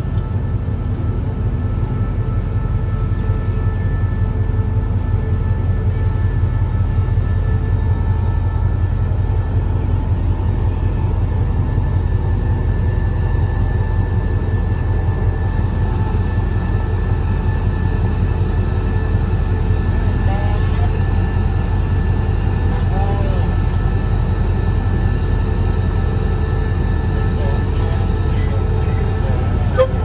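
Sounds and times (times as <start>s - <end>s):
diesel locomotive idling: 0.0s - 30.0s
faint voices: 27.2s - 30.0s.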